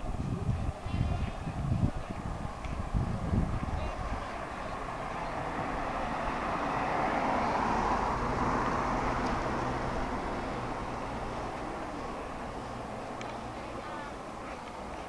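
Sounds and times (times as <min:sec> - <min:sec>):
vehicle driving past: 0:04.4 - 0:13.2.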